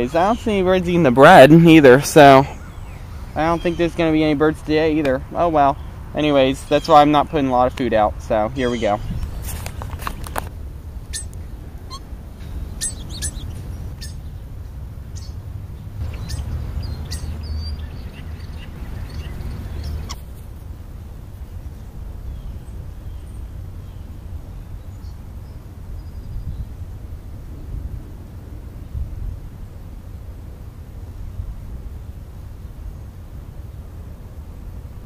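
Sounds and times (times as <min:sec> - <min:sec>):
birds chirping: 0:00.0 - 0:20.4, 0:21.4 - 0:26.7
steady low rumble: 0:00.0 - 0:35.0.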